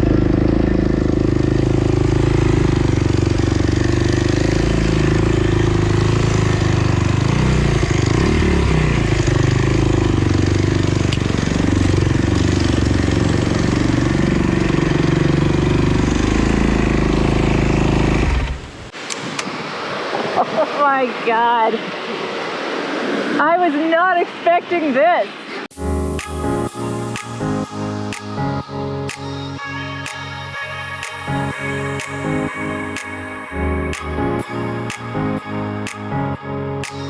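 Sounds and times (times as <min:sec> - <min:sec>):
dirt bike engine revving: 0:00.0 - 0:18.9.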